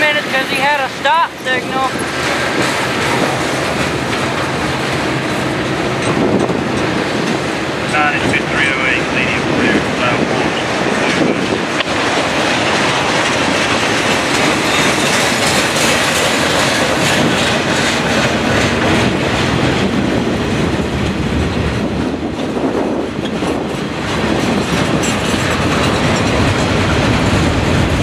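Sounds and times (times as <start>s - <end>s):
train wheels clattering: 0.0s - 28.0s.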